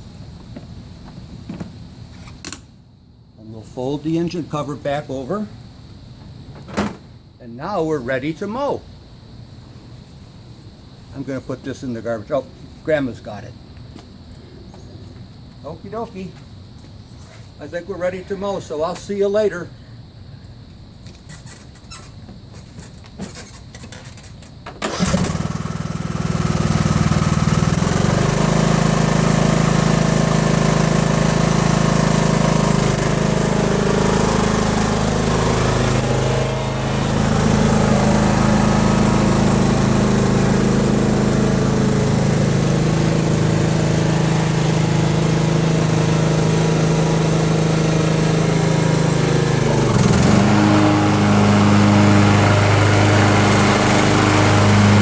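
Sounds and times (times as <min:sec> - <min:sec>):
lawn tractor engine running: 0:24.8 - 0:55.0.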